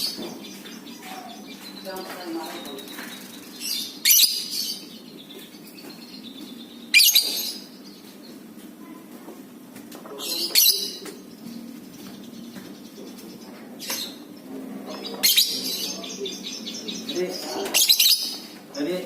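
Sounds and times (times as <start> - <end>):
steady low hum: 0.0 - 19.0
lovebird chattering calls: 2.5 - 8.0, 10.2 - 11.1, 13.8 - 18.5.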